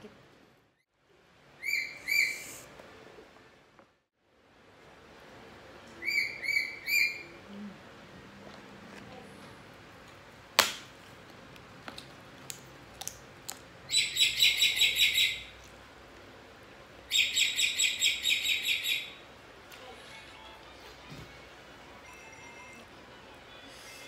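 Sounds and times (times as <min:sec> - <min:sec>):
cracker snapping when bitten: 0:11.9 - 0:13.6
songbird trilling: 0:13.9 - 0:15.5, 0:17.1 - 0:19.2.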